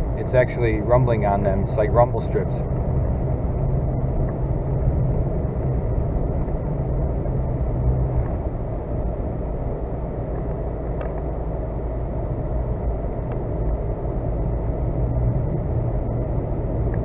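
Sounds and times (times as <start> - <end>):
pickup truck droning: 0.0 - 17.0.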